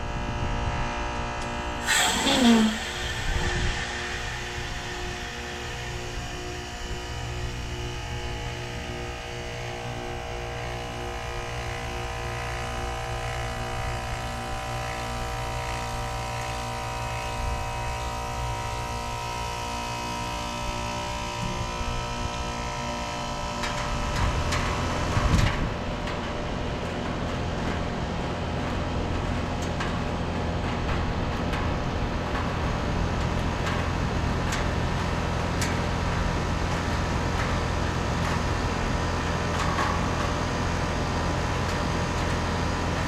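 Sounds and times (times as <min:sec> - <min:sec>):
compressor humming: 0:01.5 - 0:12.0
rushing hiss and whoosh: 0:01.8 - 0:07.7.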